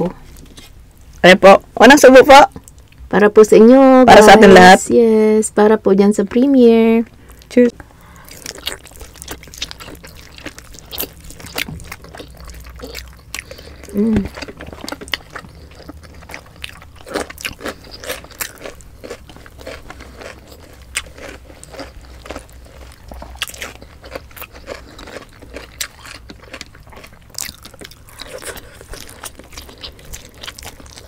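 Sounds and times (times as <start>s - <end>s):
wet chewing and lip smacking: 8.1s - 31.0s.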